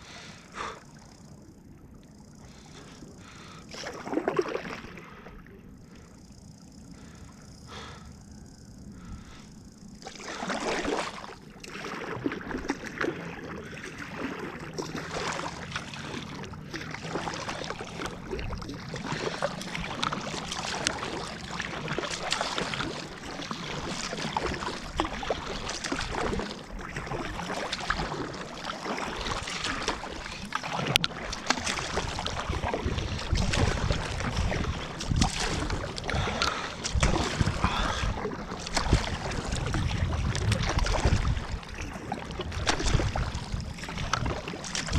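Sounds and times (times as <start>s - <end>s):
water splashing around kayak: 0.0s - 44.9s
wind rumbling on microphone: 29.2s - 44.9s.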